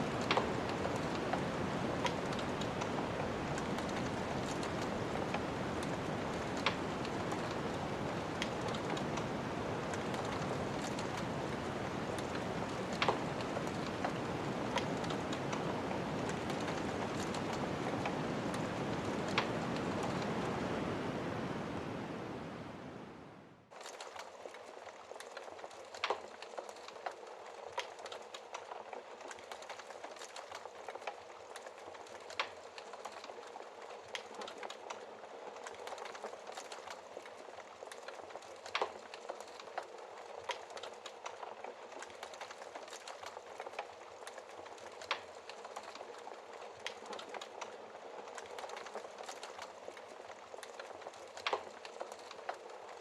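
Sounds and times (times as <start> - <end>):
snowstorm wind blowing: 0.0 - 23.7
wood fire crackling: 0.0 - 53.0.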